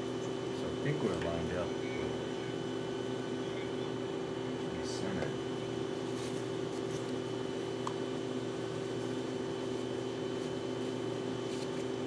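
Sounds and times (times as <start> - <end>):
faint high whine: 0.0 - 5.8
steady mechanical hum: 0.0 - 12.0.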